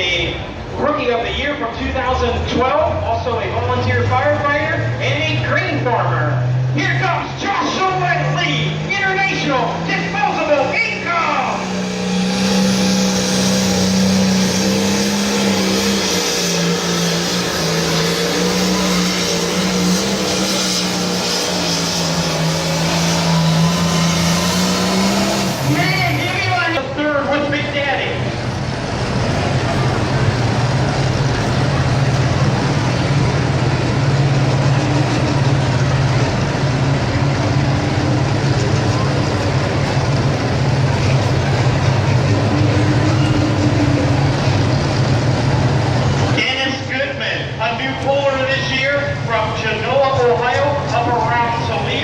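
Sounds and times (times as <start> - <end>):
tractor diesel engine under load: 0.0 - 52.0.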